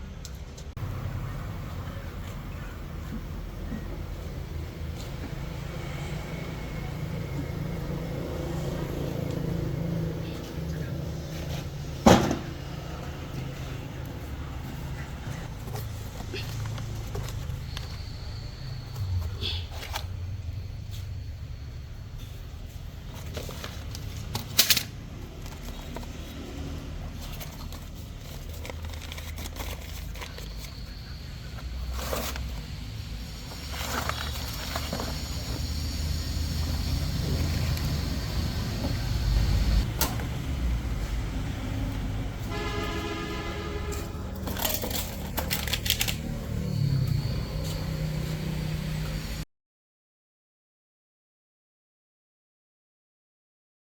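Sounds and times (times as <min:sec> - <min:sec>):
horn-like tone: 0:42.4 - 0:44.4.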